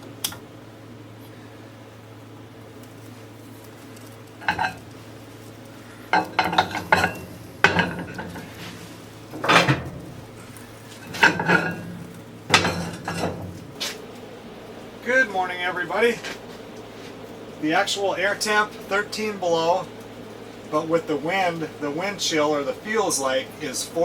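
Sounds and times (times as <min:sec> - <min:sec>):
steady low hum: 0:00.0 - 0:24.0
dishes and utensils clattering: 0:04.4 - 0:04.8, 0:06.1 - 0:08.8, 0:09.4 - 0:10.1, 0:11.0 - 0:13.6.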